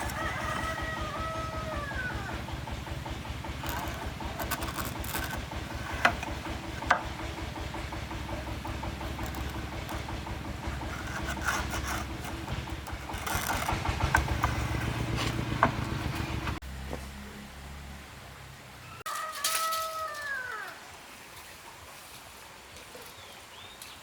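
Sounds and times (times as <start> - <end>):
sharp knocks: 0.0 - 16.6
engine running: 0.0 - 18.8.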